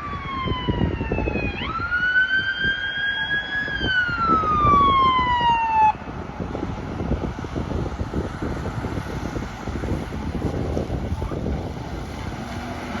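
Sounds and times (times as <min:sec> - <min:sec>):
siren wailing: 0:00.0 - 0:06.2
road and engine rumble: 0:00.0 - 0:13.0.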